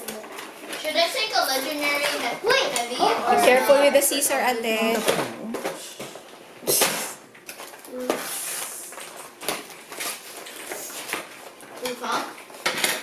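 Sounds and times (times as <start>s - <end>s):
packaging rustling: 7.3s - 13.0s.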